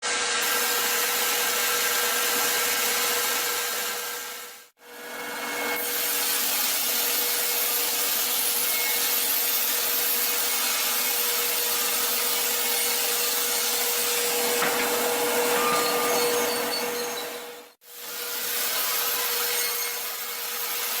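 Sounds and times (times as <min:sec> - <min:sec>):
saw rasping through wood: 0:00.0 - 0:21.0.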